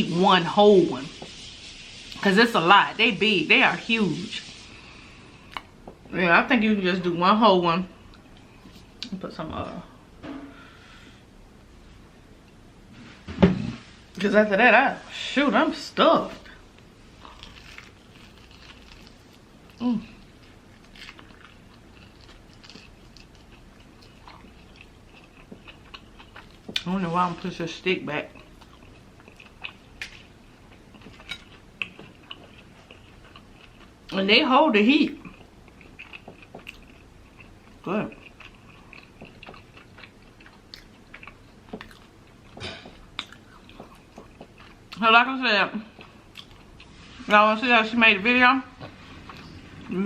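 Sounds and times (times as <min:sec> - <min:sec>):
chewing fried food: 0:16.7 - 0:27.0, 0:28.2 - 0:34.3, 0:35.0 - 0:45.1, 0:45.8 - 0:47.2.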